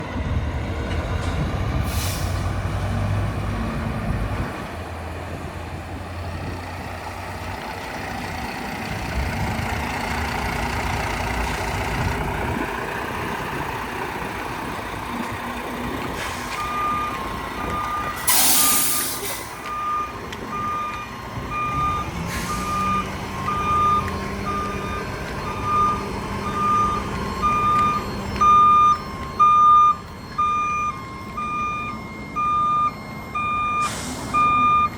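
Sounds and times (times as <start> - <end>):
truck diesel engine running: 0.0 - 34.9
air brake hiss: 1.8 - 2.5, 16.2 - 16.6, 18.2 - 19.6, 22.3 - 22.6, 33.8 - 34.4
reversing alarm beeping: 13.2 - 34.9.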